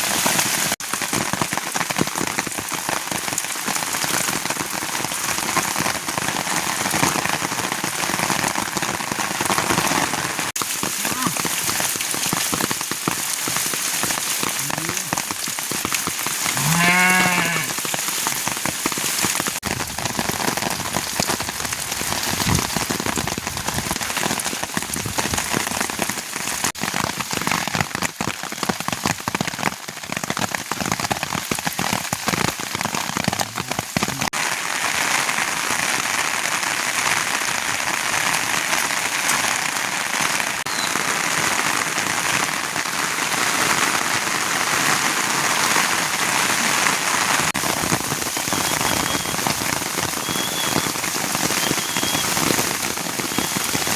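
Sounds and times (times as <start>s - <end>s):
rain pattering: 0.0s - 53.9s
sheep bleating: 16.5s - 17.8s.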